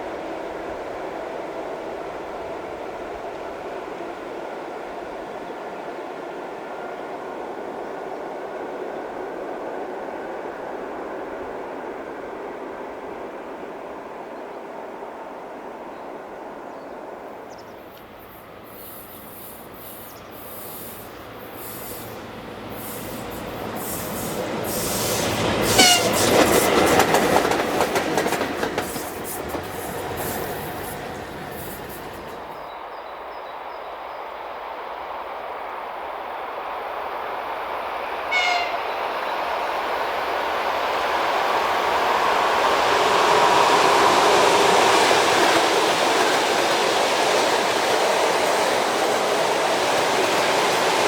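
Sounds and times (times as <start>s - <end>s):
second train approaching: 0.0s - 51.0s
train passing: 0.0s - 51.0s
train horn toot: 24.7s - 26.4s, 38.3s - 39.0s.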